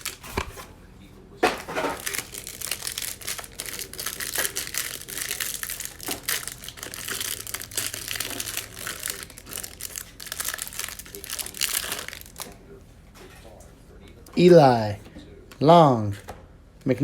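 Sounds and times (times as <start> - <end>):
packaging crinkling and tearing: 0.0 - 0.6, 1.5 - 12.6.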